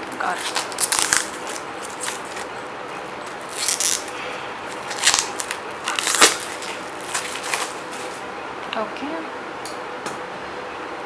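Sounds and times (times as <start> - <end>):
packaging crinkling and scraping: 0.0 - 8.3.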